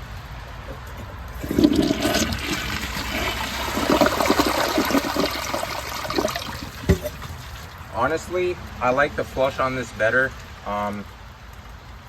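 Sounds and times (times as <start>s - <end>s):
toilet flushing: 1.0s - 7.8s.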